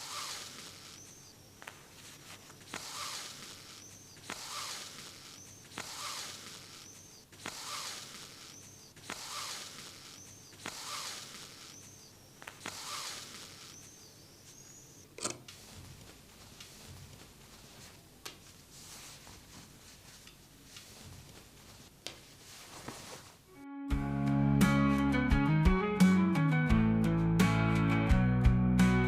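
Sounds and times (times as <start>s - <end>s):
thread squeaking: 0.0s - 1.7s, 2.5s - 15.5s
needle clicking through denim: 2.4s - 14.0s.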